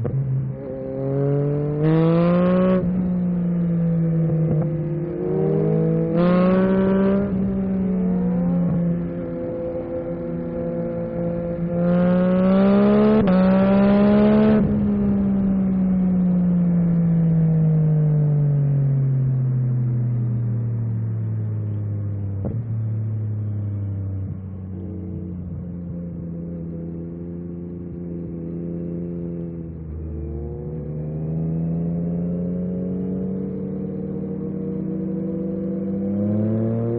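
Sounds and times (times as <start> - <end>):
motorcycle engine revving: 0.0 - 17.8, 24.2 - 36.9.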